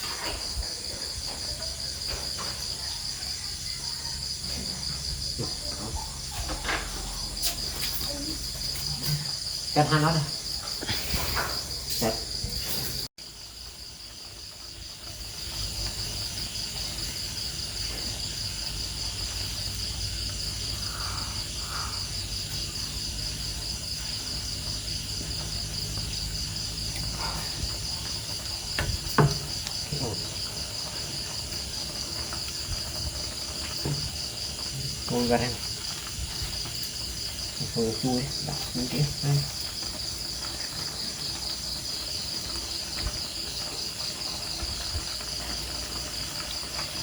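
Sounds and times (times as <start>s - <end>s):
insects trilling: 0.0s - 47.0s.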